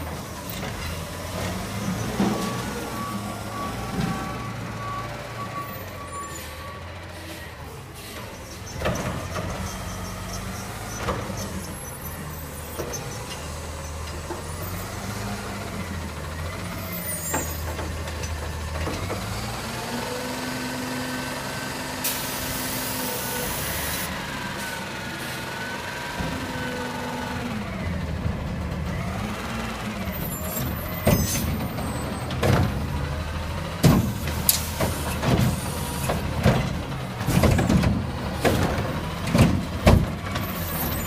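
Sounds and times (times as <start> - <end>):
garbage truck engine revving: 7.8 - 41.0
air brakes hissing: 22.0 - 24.7.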